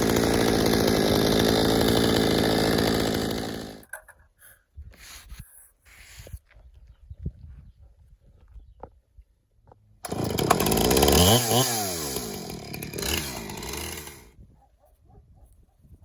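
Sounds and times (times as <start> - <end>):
chainsaw cutting at full throttle: 0.0 - 3.9, 10.0 - 14.4.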